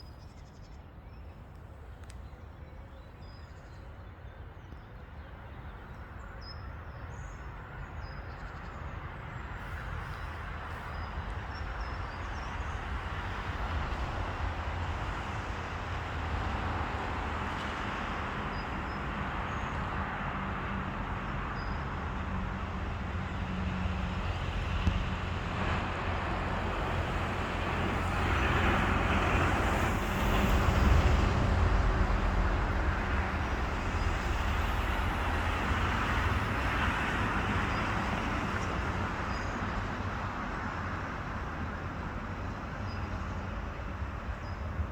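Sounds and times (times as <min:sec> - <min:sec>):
vehicle engine rumble: 0:22.2 - 0:37.7.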